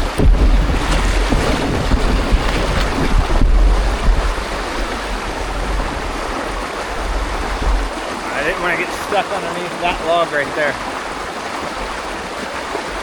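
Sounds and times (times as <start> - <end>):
wind buffeting microphone: 0.0 - 8.6
creek water rushing and splashing: 0.0 - 13.0.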